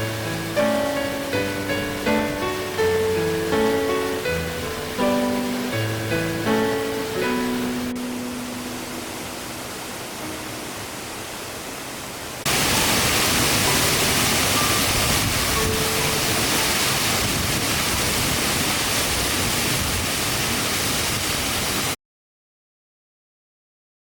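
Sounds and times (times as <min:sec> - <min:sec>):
guitar music: 0:00.0 - 0:10.8
quiet hiss: 0:00.0 - 0:12.8
waterfall roaring: 0:00.0 - 0:22.0.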